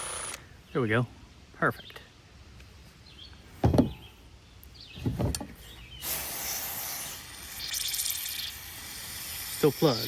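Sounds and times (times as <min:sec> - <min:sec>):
spray hissing: 0:06.0 - 0:10.0.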